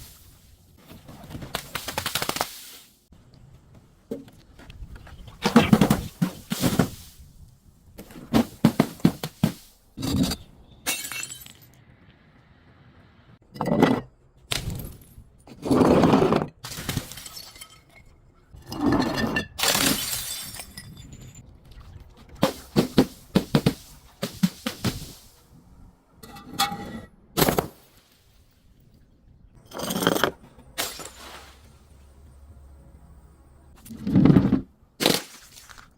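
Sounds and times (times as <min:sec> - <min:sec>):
glass bottles breaking and crunching: 0:10.1 - 0:11.7, 0:16.6 - 0:18.2, 0:18.9 - 0:21.4, 0:29.6 - 0:31.7.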